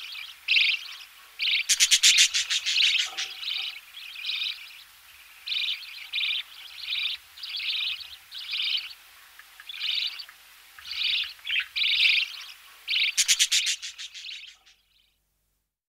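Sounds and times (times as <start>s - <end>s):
chicks making raspy begging calls: 0.2s - 4.5s.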